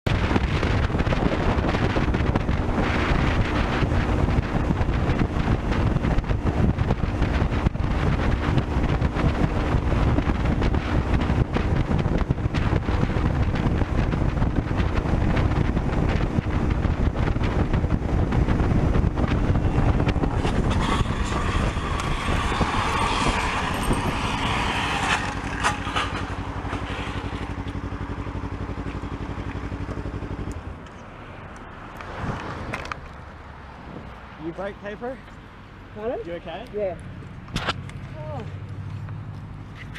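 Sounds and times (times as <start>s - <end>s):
motorcycle engine at speed: 0.1s - 33.8s, 36.0s - 39.9s
wind rush: 0.1s - 35.2s.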